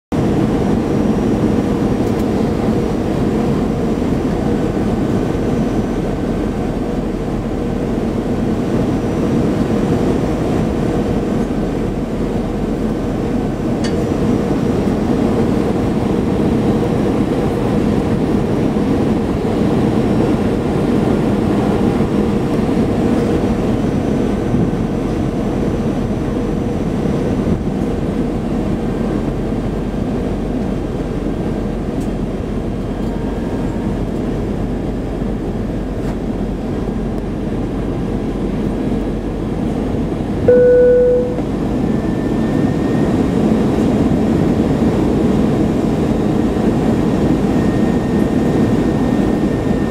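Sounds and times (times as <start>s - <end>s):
airliner cabin engine rush: 0.1s - 49.9s
steady low hum: 33.7s - 49.9s.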